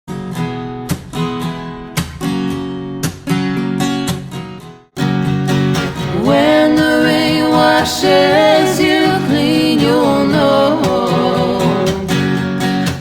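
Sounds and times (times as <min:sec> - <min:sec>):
acoustic guitar strumming chords: 0:00.1 - 0:13.0
person singing: 0:06.0 - 0:12.4.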